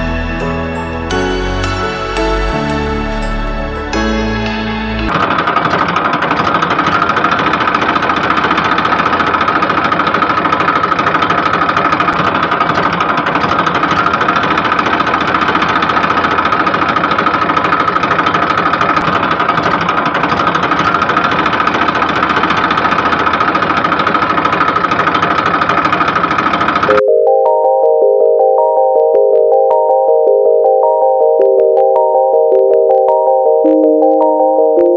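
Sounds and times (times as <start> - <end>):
toy tractor engine chugging: 5.1 - 27.0.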